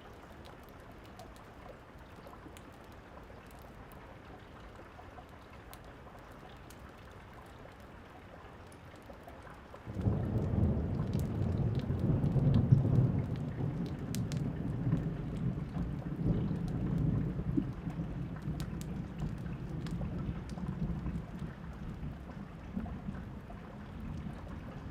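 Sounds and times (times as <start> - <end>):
steady rain falling: 0.0 - 24.9
thunder rumbling: 9.9 - 24.9.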